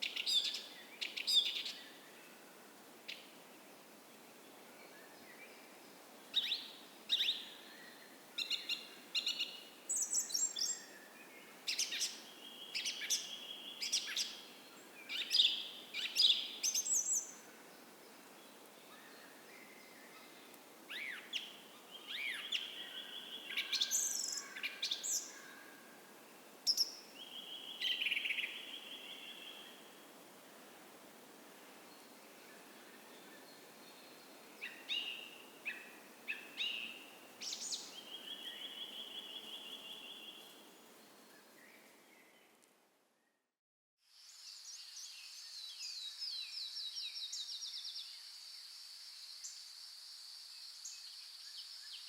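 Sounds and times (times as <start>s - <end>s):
faint steady hiss: 0.0s - 43.3s, 44.0s - 52.0s
songbirds chirping and trilling: 32.0s - 42.3s.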